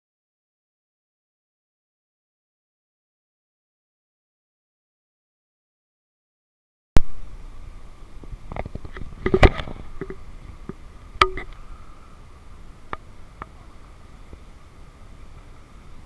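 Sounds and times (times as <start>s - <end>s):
faint steady hum: 7.0s - 16.0s.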